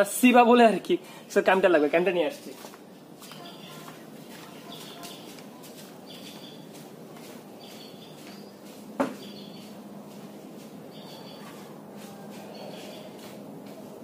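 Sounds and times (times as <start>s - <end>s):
steady background noise: 0.0s - 14.0s
bird chirping: 3.2s - 9.8s, 10.9s - 11.7s, 12.3s - 13.3s
sharp knock: 9.0s - 9.3s.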